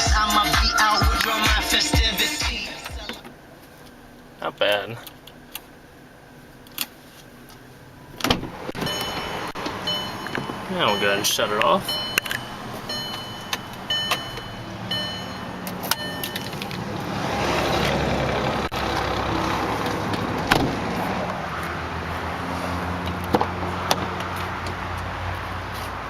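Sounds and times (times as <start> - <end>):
car warning chime beeping: 8.8 - 16.7.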